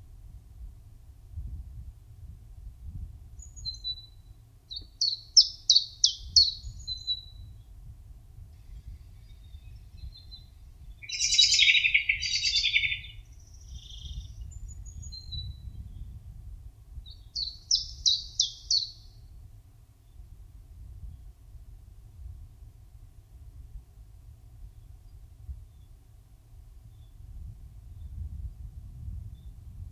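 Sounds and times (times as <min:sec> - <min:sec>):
songbirds singing: 0:03.4 - 0:07.7, 0:08.6 - 0:16.2, 0:17.0 - 0:19.3
harsh bird chatter: 0:11.0 - 0:13.1.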